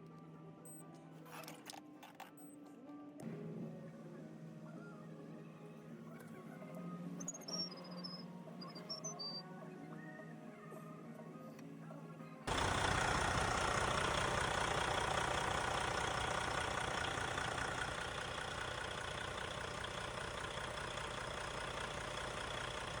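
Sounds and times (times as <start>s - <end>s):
diesel engine idling: 12.5s - 23.0s.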